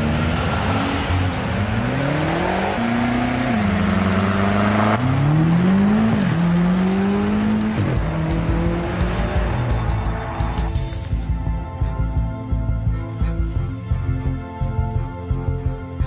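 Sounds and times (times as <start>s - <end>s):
car engine revving and accelerating: 0.0s - 11.1s
music: 0.0s - 16.0s.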